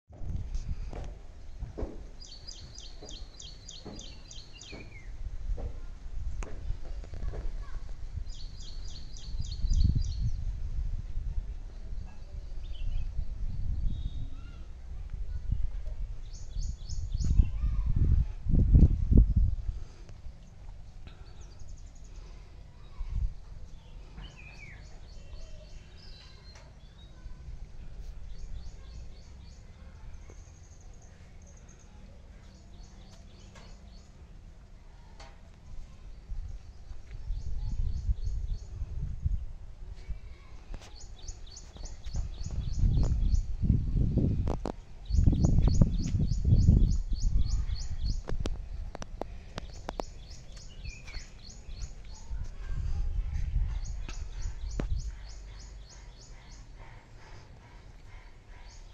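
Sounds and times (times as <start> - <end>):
low rumble on microphone: 0.1 - 26.0, 27.3 - 58.9
birds calling and singing: 0.6 - 5.7, 7.6 - 10.5, 11.7 - 14.7, 16.2 - 18.1, 19.1 - 34.3, 35.8 - 39.4, 40.0 - 58.9
steady low rumble: 41.9 - 58.9
small bird chirping: 45.0 - 52.7.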